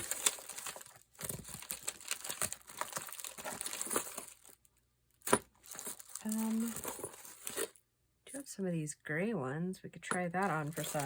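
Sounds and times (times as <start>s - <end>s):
packets rustling and crinkling: 0.0s - 7.8s, 10.4s - 11.0s.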